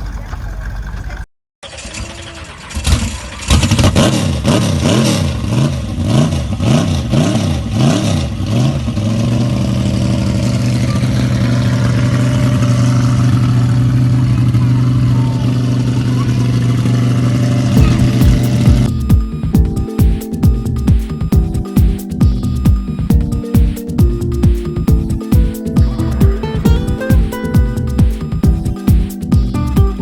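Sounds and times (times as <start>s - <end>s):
car engine revving: 3.3s - 14.6s
car engine idling: 9.6s - 30.0s.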